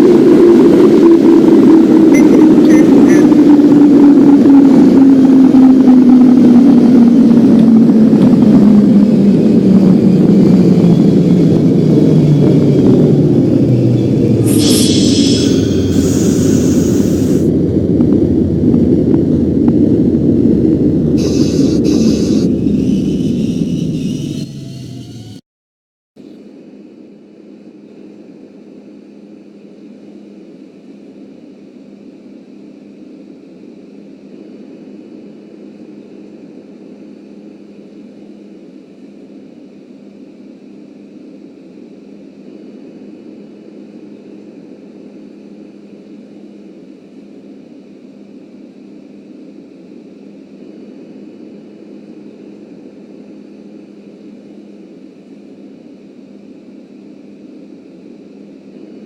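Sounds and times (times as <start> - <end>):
subway train rumbling: 0.0 - 25.4.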